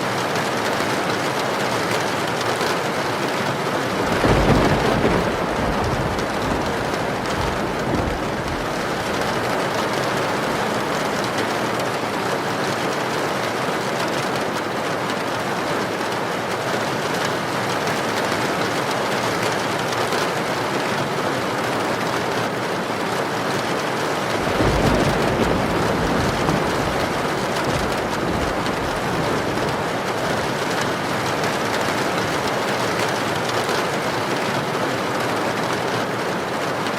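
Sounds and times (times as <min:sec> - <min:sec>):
heavy rain pouring: 0:00.0 - 0:36.9
thunder rumbling: 0:03.5 - 0:11.9, 0:24.1 - 0:32.8.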